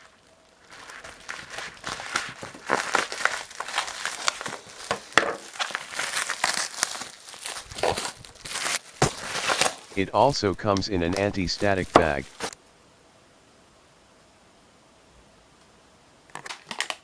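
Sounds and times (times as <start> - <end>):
bubble wrap crackling: 0.0 - 10.0, 11.8 - 12.6.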